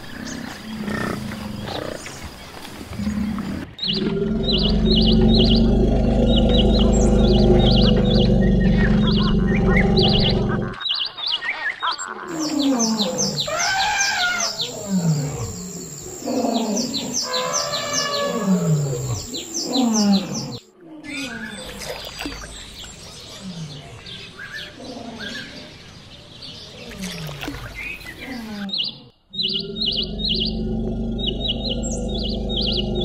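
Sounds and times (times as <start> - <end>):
birds chirping: 0.0 - 33.0
elephants calling: 12.2 - 21.6.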